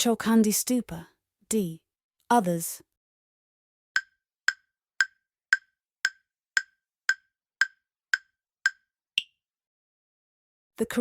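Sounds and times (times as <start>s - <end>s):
countdown timer ticks: 4.0s - 9.4s.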